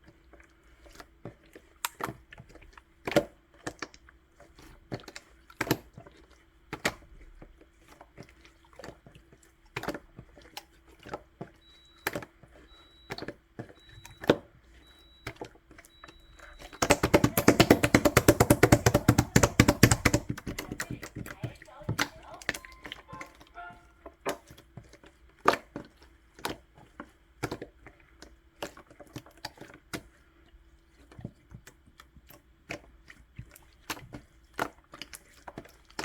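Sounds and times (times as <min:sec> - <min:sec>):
sticky slime clicks and pops: 0:16.8 - 0:21.0.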